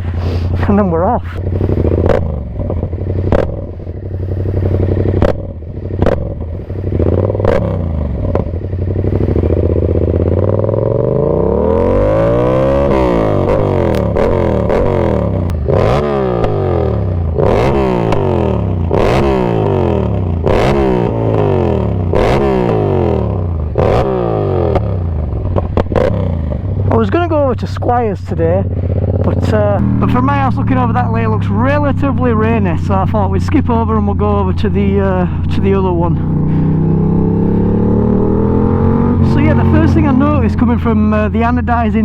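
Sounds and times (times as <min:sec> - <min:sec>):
motorcycle engine idling and revving: 0:00.0 - 0:42.0.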